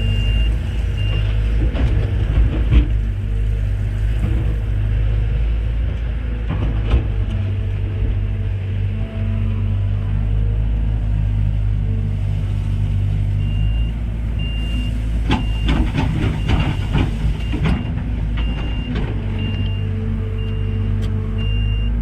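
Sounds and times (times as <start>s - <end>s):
reversing alarm beeping: 0.0s - 1.3s, 13.4s - 22.0s
heavy diesel machinery running: 0.0s - 22.0s.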